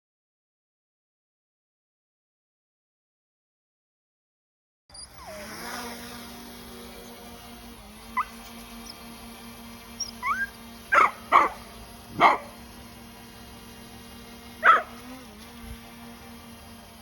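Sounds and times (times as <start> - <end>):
dog yelp rising: 5.0 - 5.6, 8.1 - 9.0, 10.0 - 12.6, 14.6 - 15.1
dog barking: 10.2 - 12.6, 14.6 - 15.0.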